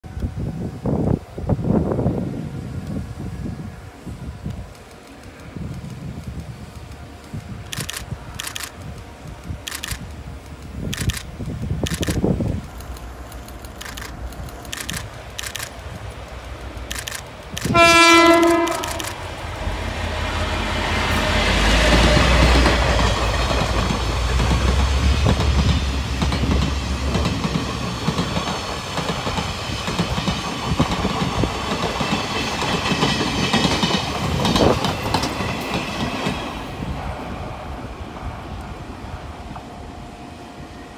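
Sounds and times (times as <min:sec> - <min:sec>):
locomotive engine rumble: 0:02.3 - 0:35.9
train wheels clattering on rails: 0:04.5 - 0:38.7
train horn blast: 0:17.7 - 0:19.4, 0:20.1 - 0:22.9.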